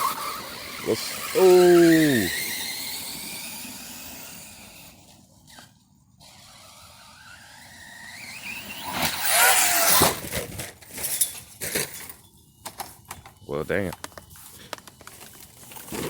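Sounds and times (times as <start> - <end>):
electric motor whining: 0.0 - 10.2.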